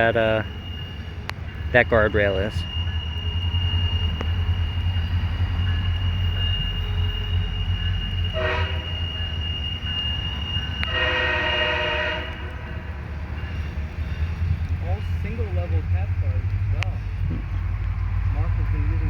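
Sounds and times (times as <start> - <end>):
locomotive air horn blasts: 5.7 - 12.9.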